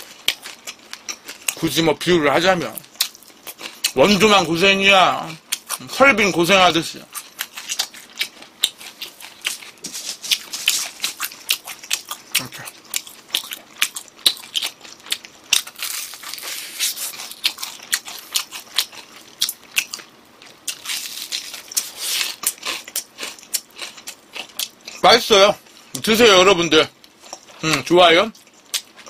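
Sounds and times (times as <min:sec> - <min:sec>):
crunchy chicken chewing: 0:00.0 - 0:01.8, 0:07.0 - 0:26.0, 0:27.0 - 0:29.0.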